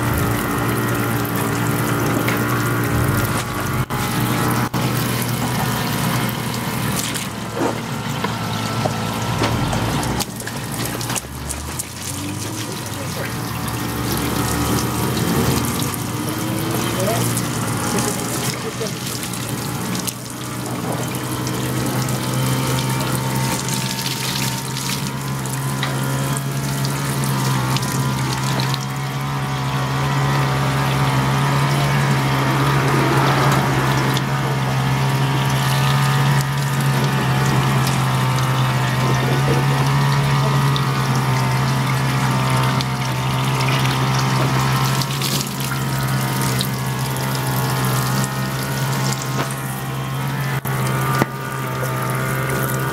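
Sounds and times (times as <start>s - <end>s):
road noise rushing: 0.0s - 21.7s
car engine hum: 0.0s - 52.9s.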